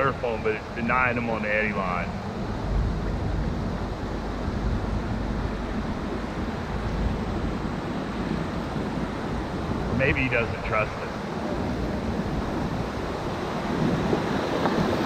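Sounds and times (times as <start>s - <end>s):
whitewater rushing: 0.0s - 15.0s
wind rumbling on microphone: 0.0s - 15.0s.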